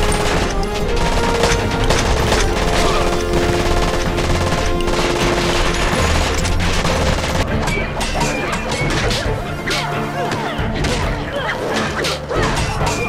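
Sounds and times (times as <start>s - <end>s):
rapid gunfire: 0.0s - 7.7s
music score: 0.0s - 11.6s.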